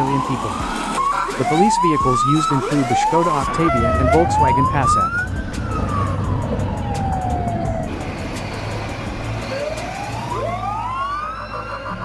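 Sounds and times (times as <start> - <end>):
police siren wailing: 0.0 - 12.0
low rumble: 5.1 - 9.5.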